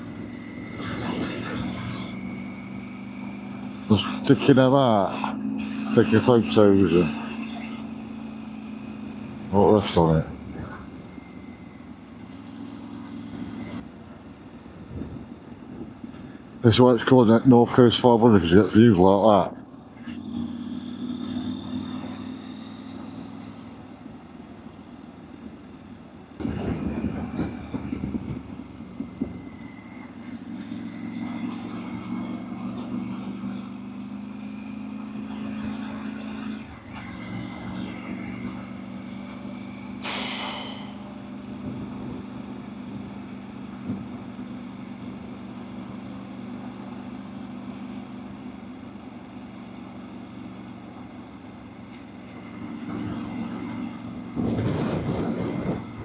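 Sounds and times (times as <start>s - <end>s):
motorcycle engine running: 0.0s - 56.0s
brief high hiss: 40.0s - 41.1s
wind rushing over microphone: 54.3s - 56.0s.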